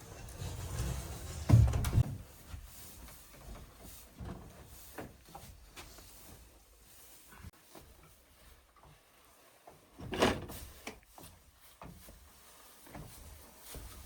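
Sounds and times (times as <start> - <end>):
heavy thump: 1.3 - 2.1.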